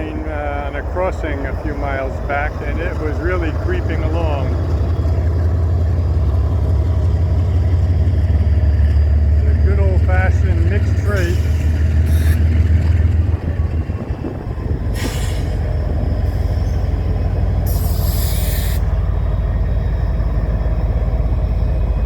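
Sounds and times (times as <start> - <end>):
diesel locomotive engine drone: 0.0 - 22.0
train wheels rumbling on rails: 0.0 - 22.0
brief hissing bursts: 17.7 - 18.9.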